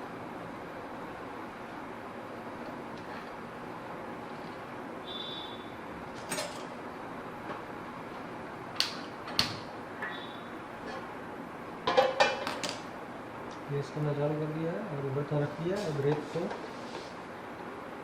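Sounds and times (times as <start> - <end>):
pan clattering on burner: 11.8 - 12.8.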